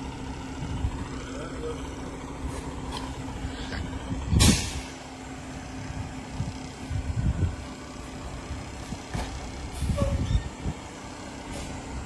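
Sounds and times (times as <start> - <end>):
garbage truck engine rumbling: 0.0 - 12.0
air brake hiss: 4.4 - 5.0.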